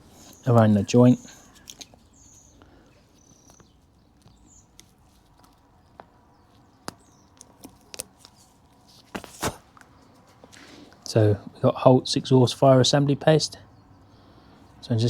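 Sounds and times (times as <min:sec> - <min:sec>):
hands handling parts clicking: 0:00.2 - 0:09.2.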